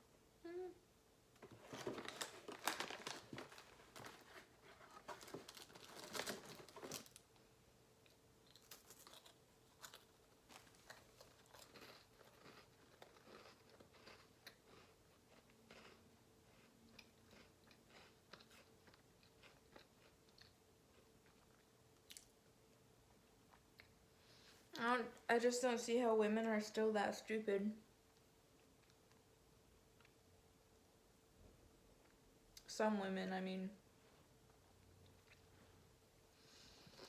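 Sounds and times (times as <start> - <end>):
crackers being crunched and chewed: 1.4 - 7.4, 8.0 - 22.3.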